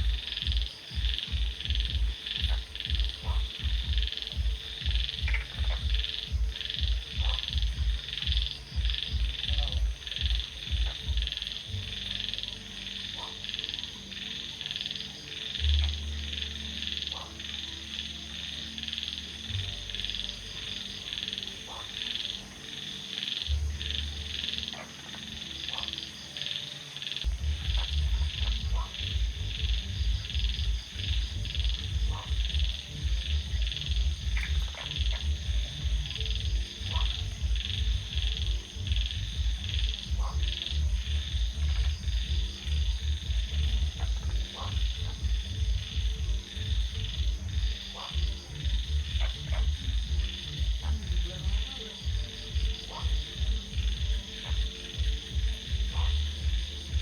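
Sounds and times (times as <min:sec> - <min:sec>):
deep rapid pulsing: 0:00.0 - 0:12.0, 0:27.3 - 0:57.0
deep rumble: 0:00.0 - 0:12.0, 0:27.3 - 0:57.0
frogs croaking: 0:00.0 - 0:57.0.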